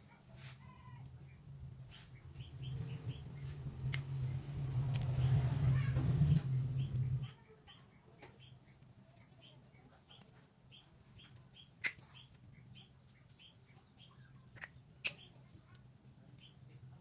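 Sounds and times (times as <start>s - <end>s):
low steady hum: 0.7s - 17.0s
small bird chirping: 1.2s - 5.9s, 6.5s - 16.9s.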